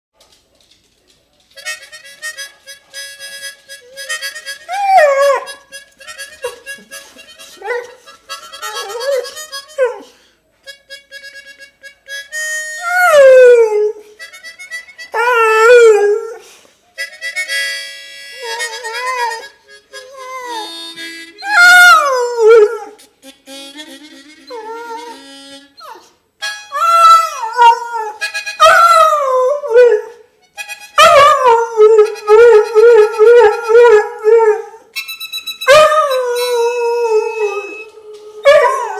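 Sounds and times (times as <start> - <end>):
bluesy harmonica: 1.6 - 38.9.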